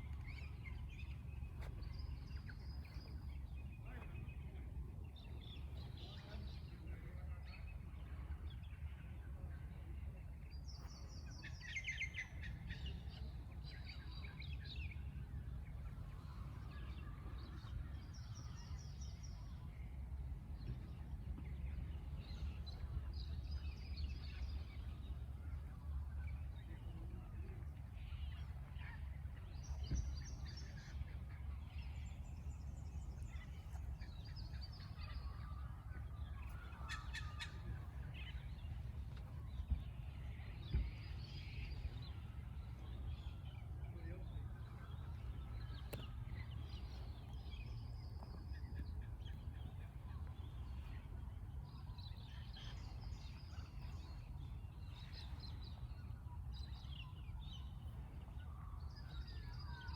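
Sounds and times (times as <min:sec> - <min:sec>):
low background rumble: 0:00.0 - 0:59.9
birds chirping and trilling: 0:21.6 - 0:59.9.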